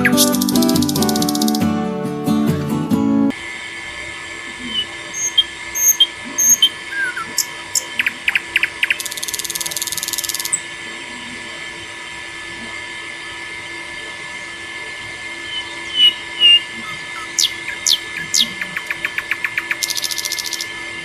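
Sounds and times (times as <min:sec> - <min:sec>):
birds chirping: 0:00.0 - 0:01.7, 0:04.6 - 0:10.7, 0:15.4 - 0:21.0
high insect-like hum: 0:00.0 - 0:01.8, 0:04.7 - 0:06.7, 0:07.4 - 0:10.6, 0:17.4 - 0:21.0
rapid buzzing trill: 0:00.0 - 0:01.9, 0:05.1 - 0:06.8, 0:15.5 - 0:21.0.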